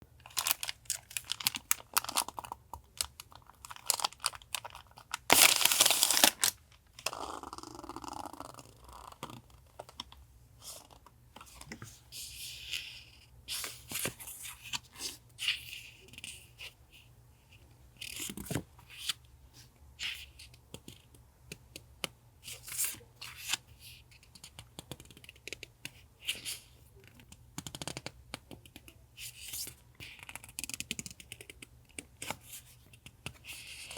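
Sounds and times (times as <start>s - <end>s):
paper rustling and crinkling: 0.3s - 6.6s.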